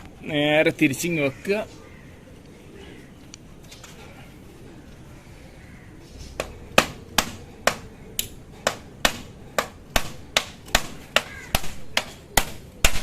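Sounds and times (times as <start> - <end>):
hammer striking nails into wood: 6.4 - 13.0.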